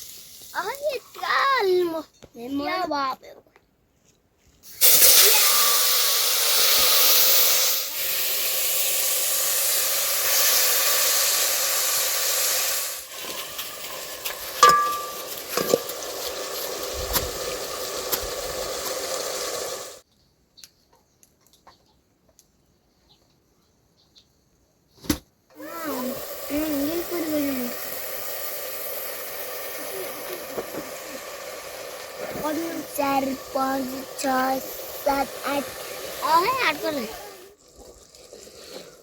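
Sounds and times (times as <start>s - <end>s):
loud steady hiss: 0.0s - 1.0s, 4.7s - 20.0s, 25.5s - 37.6s.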